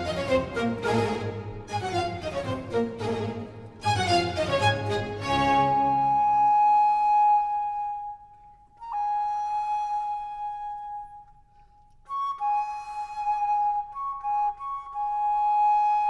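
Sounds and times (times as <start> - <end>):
flute playing held notes: 3.8 - 11.4, 12.1 - 16.0.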